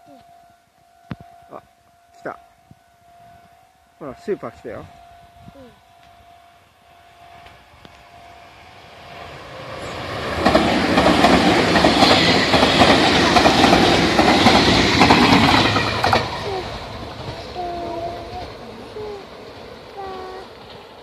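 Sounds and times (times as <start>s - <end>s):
express train passing: 0.1s - 21.0s
wheels clattering over rail joints: 9.8s - 21.0s.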